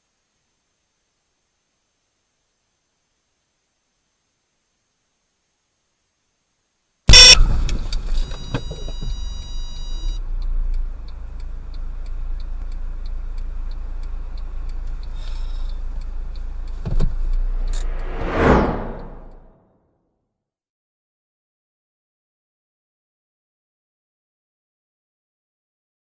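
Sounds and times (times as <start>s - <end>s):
low vehicle rumble: 7.3s - 19.6s
light ticking: 7.6s - 17.9s
high ringing tone: 8.2s - 10.2s.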